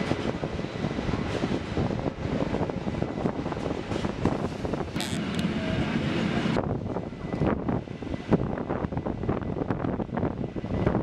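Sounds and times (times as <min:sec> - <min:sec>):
train wheels rumbling and clicking: 0:00.0 - 0:08.8
wind buffeting microphone: 0:00.0 - 0:11.0.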